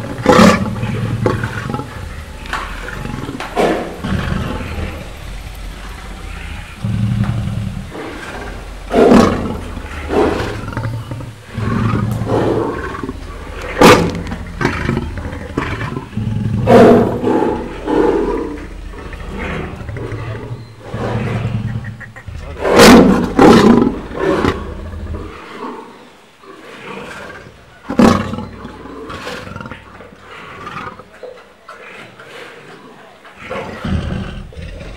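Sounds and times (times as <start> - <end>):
lion growling and roaring: 0.0 - 34.9.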